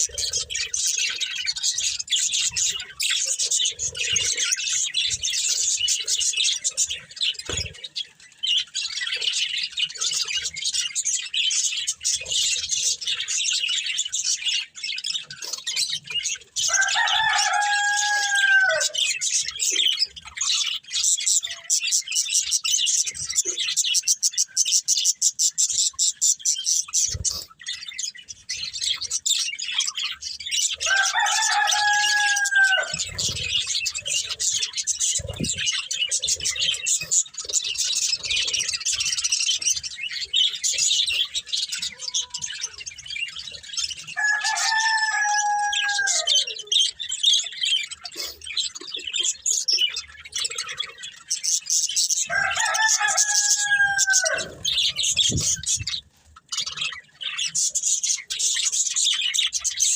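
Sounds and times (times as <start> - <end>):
budgerigars chattering: 0.0 - 59.9
rooster crowing: 16.6 - 19.0, 30.8 - 33.1, 44.2 - 46.6, 52.3 - 55.8.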